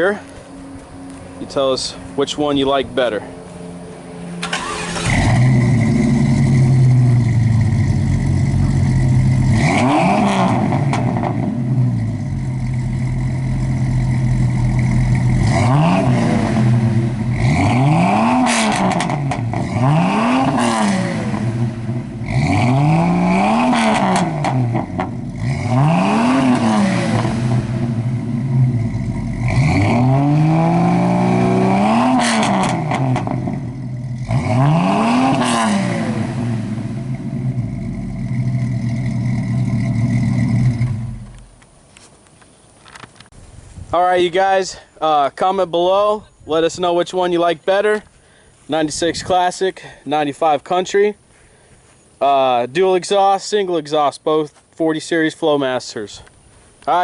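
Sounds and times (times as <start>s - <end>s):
car engines revving: 0.0s - 41.6s.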